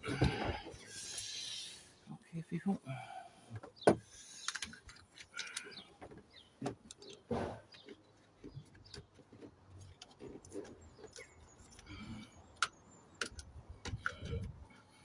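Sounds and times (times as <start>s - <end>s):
parts and tools clicking: 4.4s - 5.8s, 6.8s - 14.6s.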